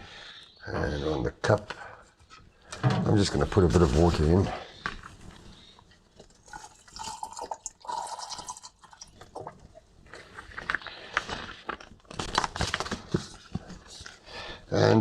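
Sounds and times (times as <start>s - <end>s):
water pouring into cup: 6.4s - 9.8s.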